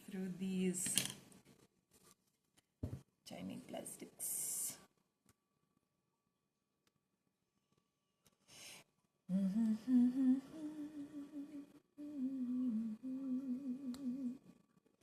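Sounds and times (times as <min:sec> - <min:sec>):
person humming: 0:09.3 - 0:14.5.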